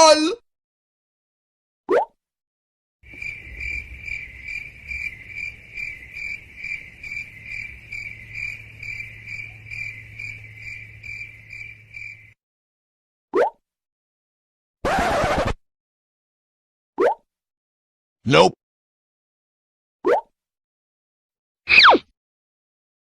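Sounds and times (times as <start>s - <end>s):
cricket chirping: 3.1s - 12.4s.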